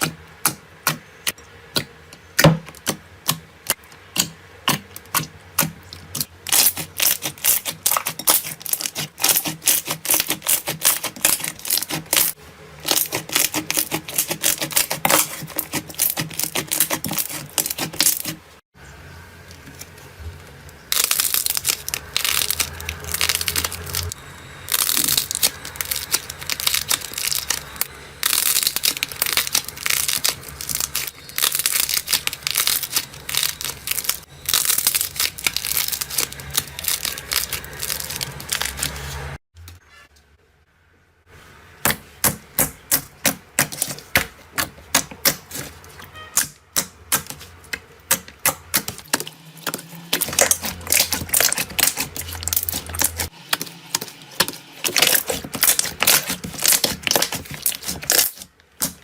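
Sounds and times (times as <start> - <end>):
slime crackling and clicking: 20.9 - 39.0, 48.1 - 59.0.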